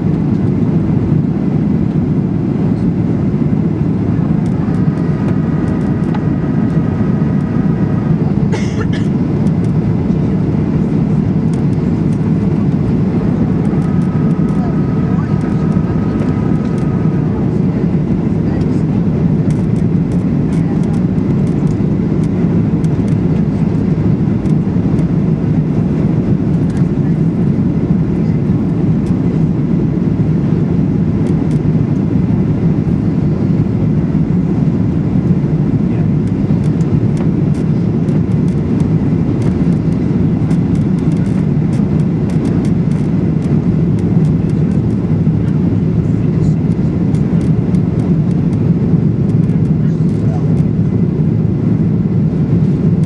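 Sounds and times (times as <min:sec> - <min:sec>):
airplane cabin engine rumble: 0:00.0 - 0:53.0.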